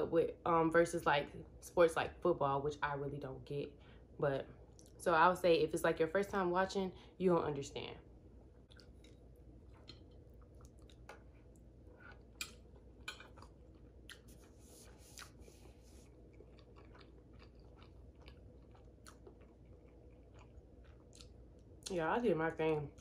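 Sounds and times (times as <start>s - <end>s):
faint close-up chewing: 8.6s - 22.0s.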